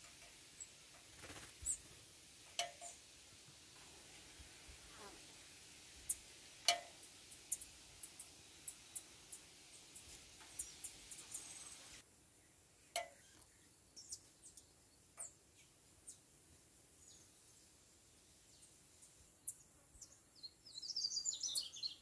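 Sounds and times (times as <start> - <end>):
birds chirping and twittering: 0.5 - 2.0, 6.0 - 16.3, 17.0 - 22.0.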